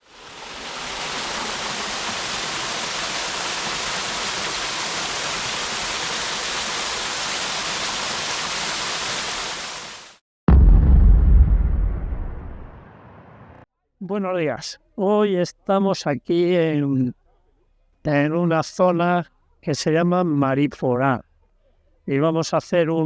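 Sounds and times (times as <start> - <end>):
loud low rumble: 10.5 - 13.6.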